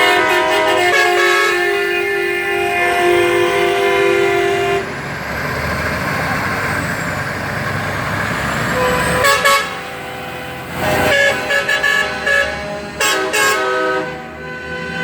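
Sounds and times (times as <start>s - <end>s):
truck air horns honking: 0.0s - 5.0s, 8.4s - 15.0s
trucks passing: 0.0s - 15.0s.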